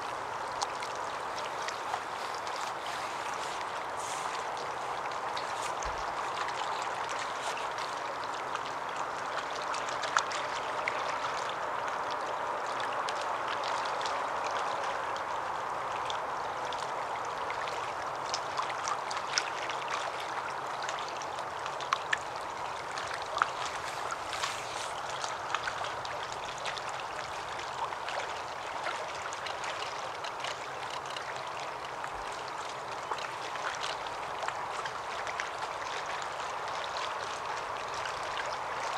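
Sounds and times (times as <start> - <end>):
running water rushing: 0.0 - 38.9
faint ticks and clicks: 29.5 - 32.0.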